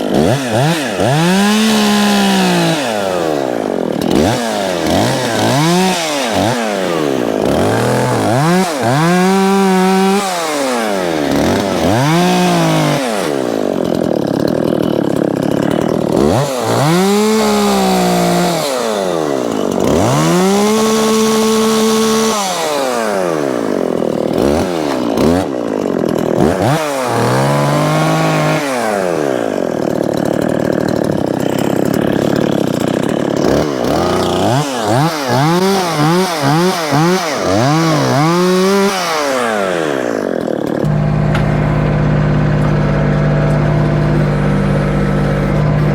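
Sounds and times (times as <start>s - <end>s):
chainsaw cutting through wood: 0.0s - 45.9s.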